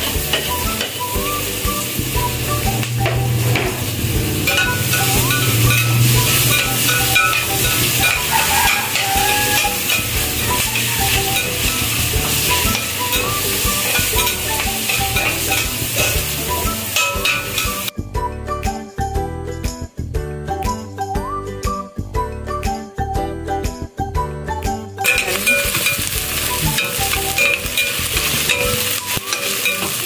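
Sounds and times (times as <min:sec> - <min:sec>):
garlic and onion sizzling in oil: 0:00.0 - 0:17.9, 0:25.0 - 0:30.0
spatula stirring in a pot: 0:04.5 - 0:17.9.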